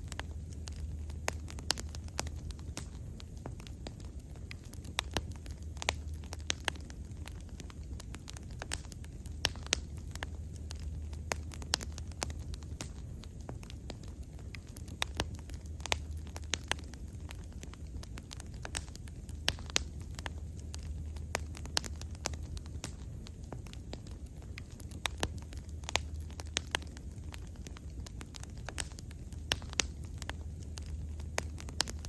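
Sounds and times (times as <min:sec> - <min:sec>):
low rumble of flames: 0:00.0 - 0:32.0
wood fire crackling and popping: 0:00.0 - 0:32.0.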